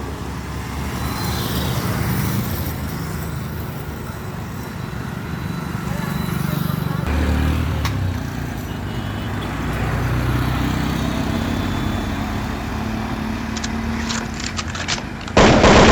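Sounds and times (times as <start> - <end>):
short clicks: 13.6 - 15.9.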